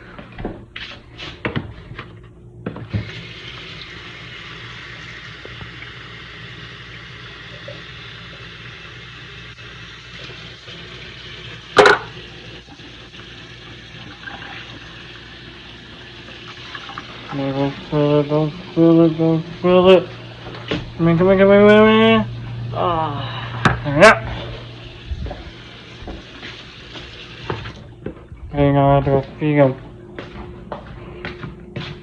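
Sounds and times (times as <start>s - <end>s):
tap water filling container: 2.7s - 9.0s, 9.9s - 18.4s, 25.1s - 28.2s.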